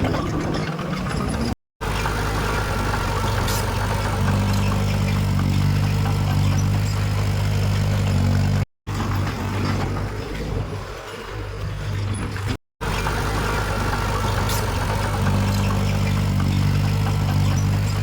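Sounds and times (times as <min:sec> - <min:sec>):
diesel machine engine humming: 0:00.8 - 0:10.8, 0:12.8 - 0:18.0.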